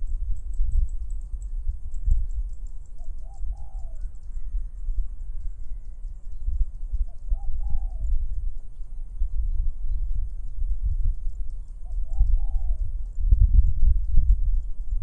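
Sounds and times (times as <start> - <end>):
wind rumbling on microphone: 0.0 - 15.0
bird short low call: 7.1 - 8.1, 11.8 - 12.9.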